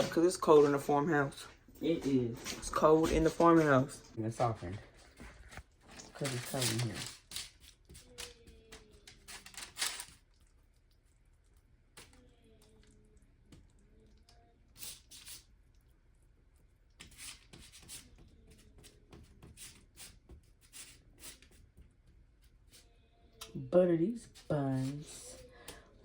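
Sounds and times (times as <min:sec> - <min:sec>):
rustling scrapes: 0:00.0 - 0:07.6.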